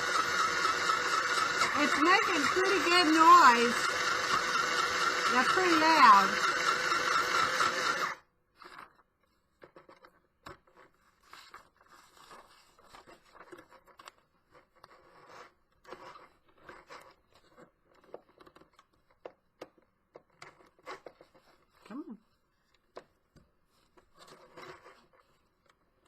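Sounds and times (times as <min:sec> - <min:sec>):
sewing machine running: 0:00.0 - 0:08.2.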